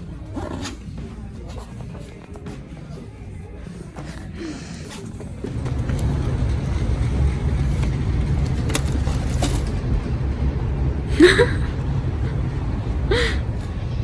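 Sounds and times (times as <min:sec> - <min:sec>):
steady low rumble: 0:05.3 - 0:14.0.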